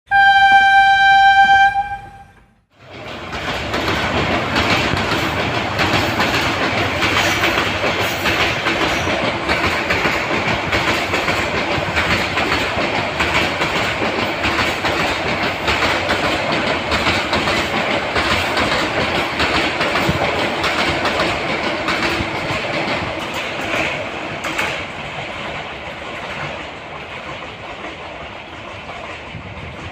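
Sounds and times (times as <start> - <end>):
train horn note: 0.1 - 2.6
train rumbling with wheel clatter: 2.7 - 29.9.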